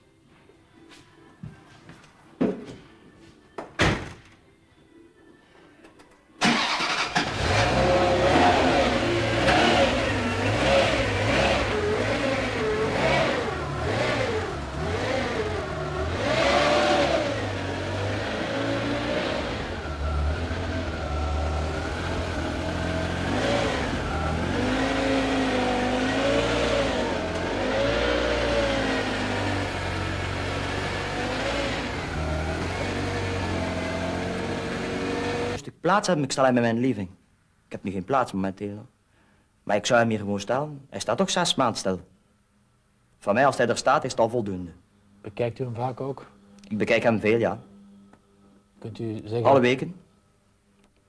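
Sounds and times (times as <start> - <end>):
car engine starting and revving: 6.4 - 35.6.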